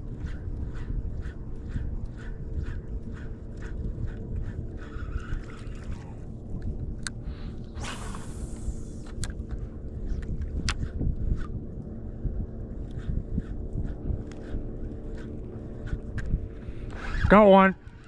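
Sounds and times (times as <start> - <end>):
wind rumbling on microphone: 0.0 - 18.0
hiss: 7.8 - 9.1.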